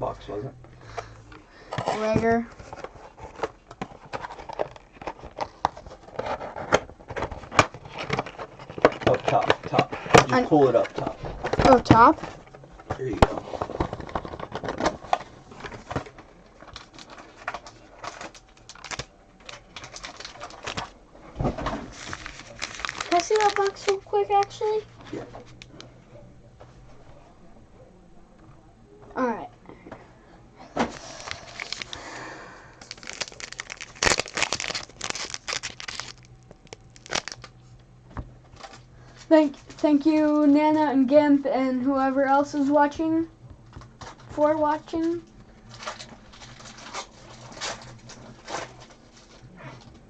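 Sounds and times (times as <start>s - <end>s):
cardboard box and card packs rustling: 1.7s - 25.7s, 30.8s - 32.2s, 32.8s - 37.6s, 44.0s - 49.9s
card packaging tearing and crinkling: 13.0s - 20.9s, 21.7s - 25.7s, 30.8s - 32.2s, 32.8s - 37.6s.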